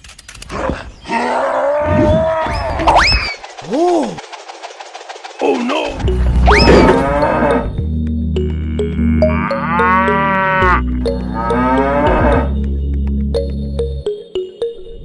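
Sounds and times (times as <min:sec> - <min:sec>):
background music with bass line: 0:06.0 - 0:15.0
cattle mooing: 0:08.5 - 0:10.8, 0:11.4 - 0:12.5.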